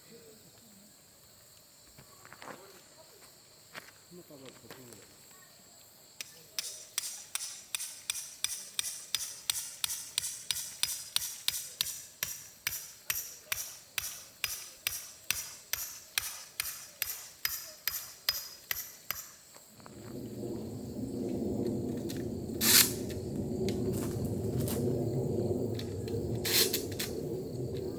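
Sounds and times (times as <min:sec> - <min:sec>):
sharp high-pitched clicks: 0:06.2 - 0:19.4.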